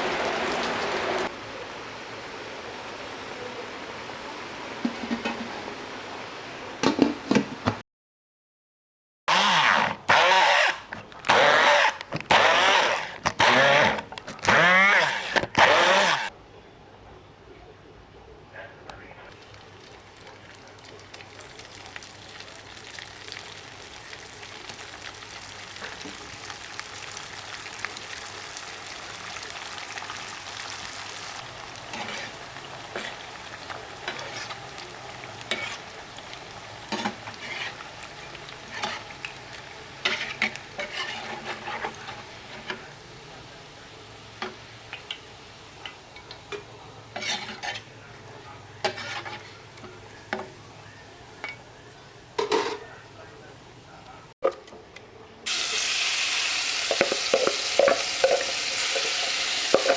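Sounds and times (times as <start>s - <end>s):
food sizzling in hot oil: 0.0s - 1.3s, 19.4s - 47.9s, 55.5s - 59.9s
utensil scraping a pan: 31.9s - 33.2s, 34.0s - 34.7s, 35.5s - 35.9s, 36.9s - 37.9s, 38.6s - 39.2s, 40.0s - 42.9s, 46.6s - 48.0s, 48.8s - 50.0s.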